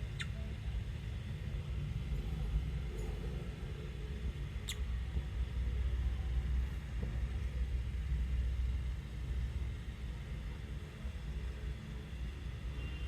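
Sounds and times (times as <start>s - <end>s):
lovebird chirp: 0.0s - 0.5s, 4.6s - 4.9s.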